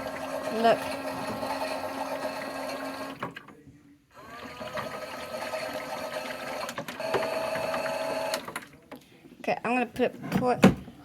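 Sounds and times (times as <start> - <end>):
toy washing machine motor whining: 0.0 - 3.2, 4.2 - 8.5.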